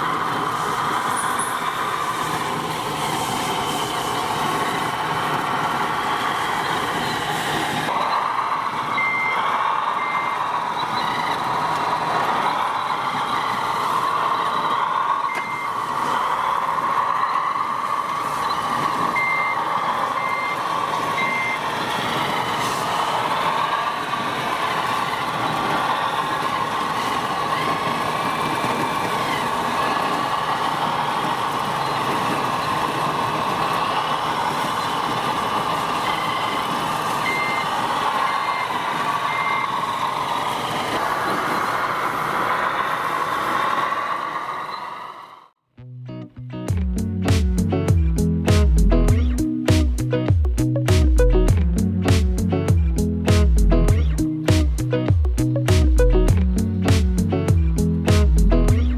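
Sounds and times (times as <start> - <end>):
reversing beeper short beeps: 8.9 - 9.4, 15.3 - 15.8, 18.4 - 19.6, 20.2 - 20.6, 21.2 - 21.6, 37.2 - 37.7.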